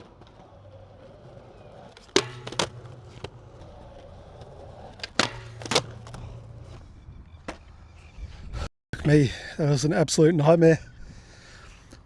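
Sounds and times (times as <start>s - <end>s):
skateboard wheels rolling: 0.0s - 8.2s
skateboard slapping down: 1.3s - 6.6s
skateboard tail popping on concrete: 1.7s - 6.6s.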